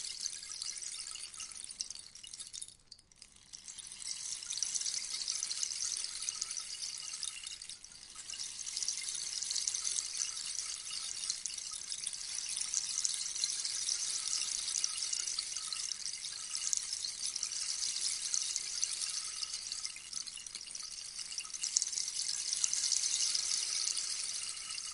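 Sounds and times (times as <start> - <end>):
rainstick pellets trickling: 0.0 - 24.9.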